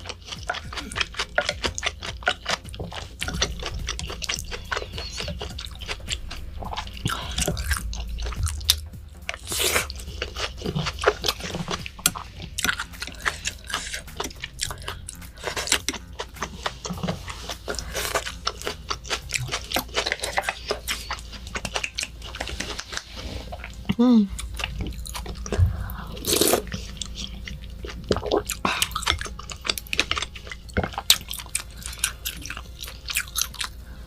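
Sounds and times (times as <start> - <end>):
chewing with wet mouth clicks: 0.0 - 34.0.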